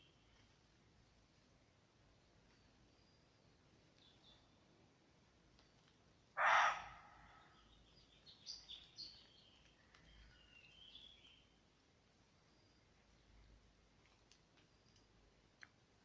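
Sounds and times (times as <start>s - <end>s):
faint chirps: 0.0s - 13.8s
animal screeching: 6.4s - 7.0s
short high calls: 6.4s - 7.1s.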